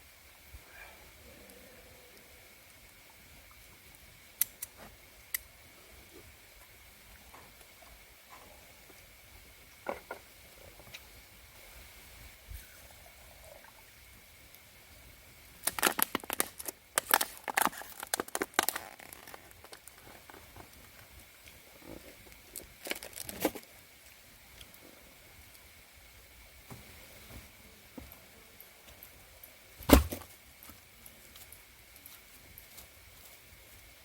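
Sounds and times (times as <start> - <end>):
crinkling and rustling: 15.6 - 21.1, 21.8 - 23.7.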